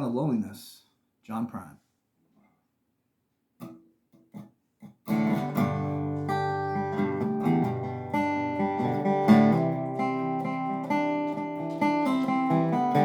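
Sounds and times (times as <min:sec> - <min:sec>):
resonator guitar chords: 0:05.1 - 0:13.0.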